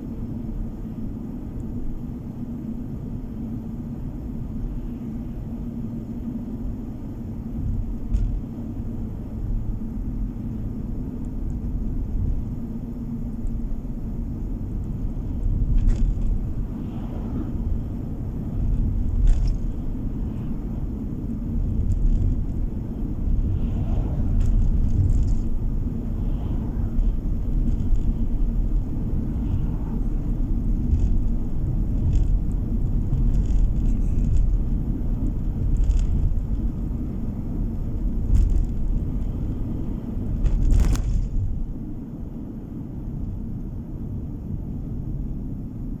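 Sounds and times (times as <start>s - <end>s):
tyre and engine rumble: 0.0s - 46.0s
light knocks from road bumps: 7.6s - 8.7s, 14.8s - 16.8s, 18.4s - 20.7s, 27.4s - 37.2s, 37.8s - 41.7s.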